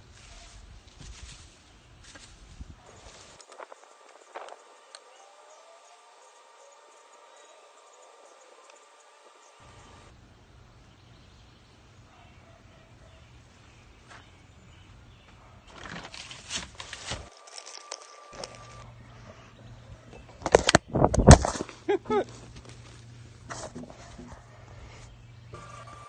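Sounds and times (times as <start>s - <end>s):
footsteps: 0.0s - 4.6s, 16.1s - 18.8s.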